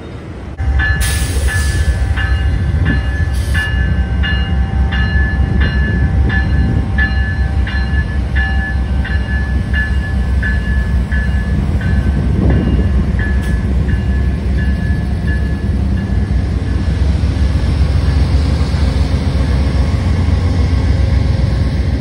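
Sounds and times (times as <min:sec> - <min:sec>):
diesel locomotives rumbling: 0:00.0 - 0:22.0
crossing bell dinging: 0:00.6 - 0:17.2.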